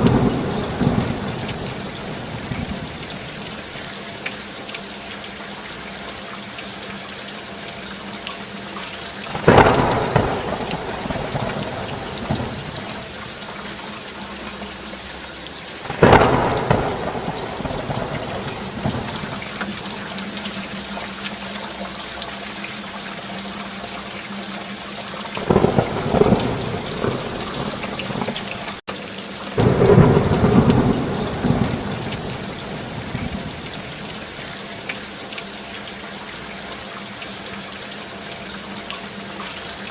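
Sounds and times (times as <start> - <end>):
rolling thunder claps: 0.0 - 3.4, 9.3 - 13.2, 15.9 - 20.1, 25.4 - 28.8, 29.6 - 34.3
steady rain hiss: 0.0 - 39.9.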